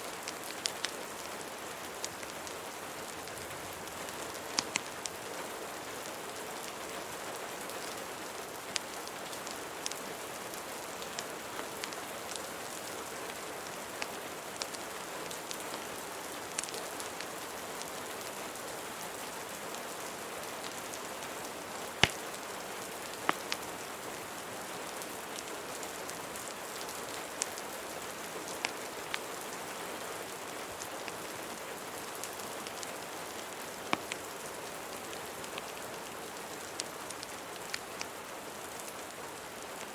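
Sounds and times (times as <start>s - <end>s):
rain falling: 0.0s - 39.9s
fireplace crackling: 16.4s - 17.3s, 20.6s - 24.0s, 26.8s - 29.3s, 31.9s - 34.2s.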